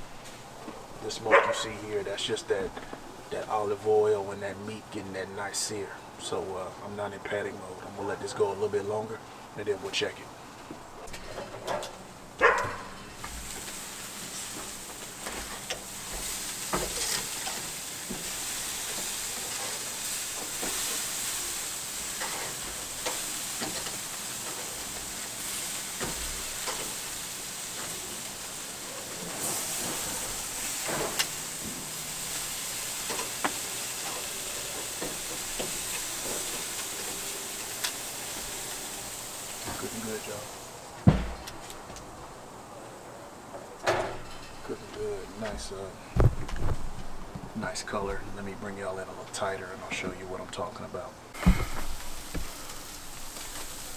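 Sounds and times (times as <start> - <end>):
meat sizzling on a grill: 11.6 - 42.6, 51.3 - 53.9.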